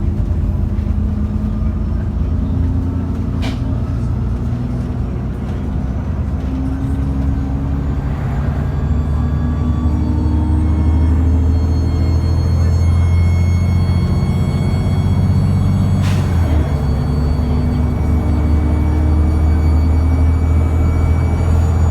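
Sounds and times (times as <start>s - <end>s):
bus diesel engine running: 0.0s - 21.9s
turbo whine: 7.8s - 21.9s.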